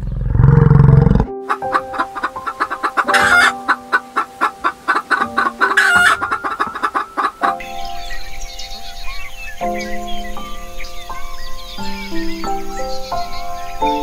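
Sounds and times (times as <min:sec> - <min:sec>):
background music with held notes: 0:01.3 - 0:14.0
hen calling: 0:01.4 - 0:14.0
hen clucking: 0:01.5 - 0:08.2.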